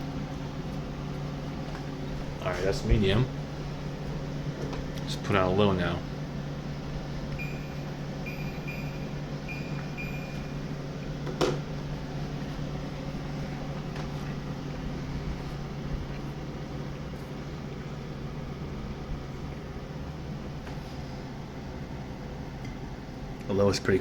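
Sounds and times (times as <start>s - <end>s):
air conditioner humming: 0.0s - 24.0s
short high beeps: 7.4s - 10.5s.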